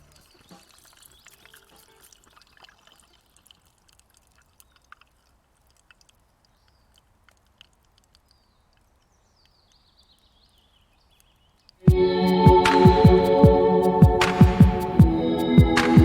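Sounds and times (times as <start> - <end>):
faint irregular clicks: 0.0 - 11.9.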